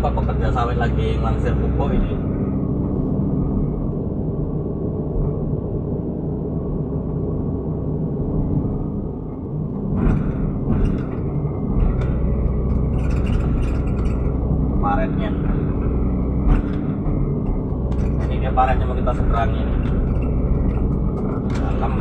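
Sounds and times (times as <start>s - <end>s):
excavator diesel engine running: 0.0s - 22.0s
metal clanks: 9.8s - 22.0s.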